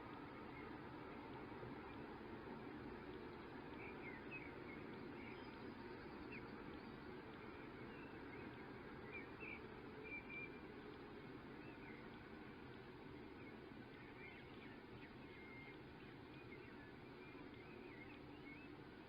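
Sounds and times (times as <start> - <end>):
faint bird chirps: 13.2 - 19.0.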